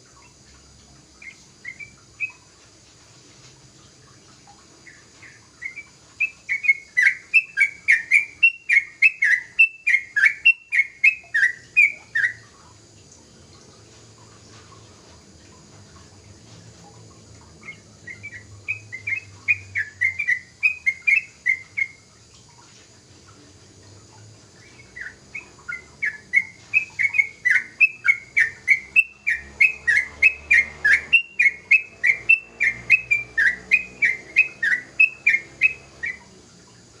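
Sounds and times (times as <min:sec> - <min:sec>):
bird singing whistled notes: 0:01.2 - 0:02.5, 0:04.8 - 0:12.5, 0:17.6 - 0:22.1, 0:24.6 - 0:36.3.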